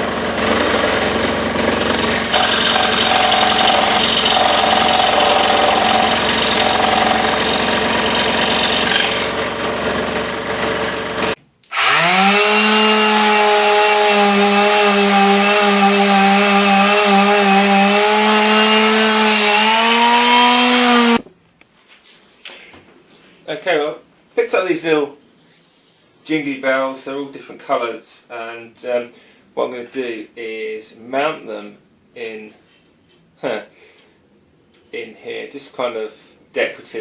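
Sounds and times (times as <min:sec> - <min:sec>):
scroll saw cutting wood: 0:00.0 - 0:10.1, 0:10.8 - 0:21.2.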